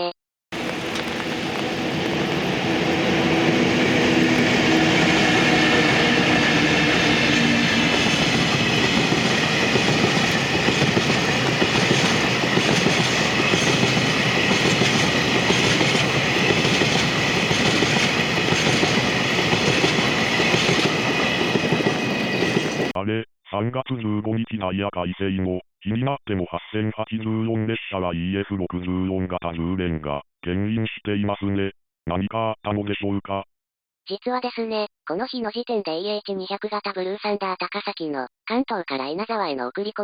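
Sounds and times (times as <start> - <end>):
train wheels rumbling on rails: 0.6 - 23.0.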